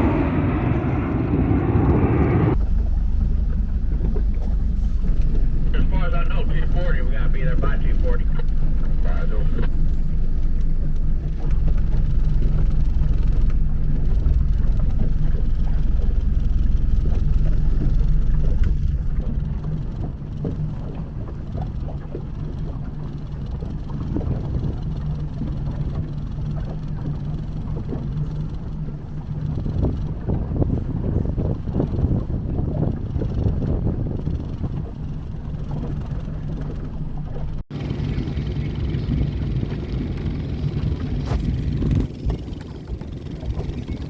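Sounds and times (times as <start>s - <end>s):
aircraft engines droning: 0.0s - 21.9s, 35.9s - 44.0s
wind on microphone: 0.0s - 44.0s.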